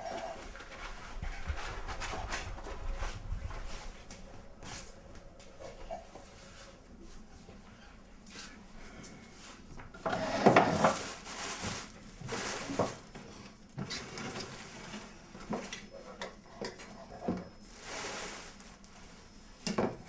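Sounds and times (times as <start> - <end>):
scraping or rustling: 10.1 - 13.0, 17.6 - 18.9.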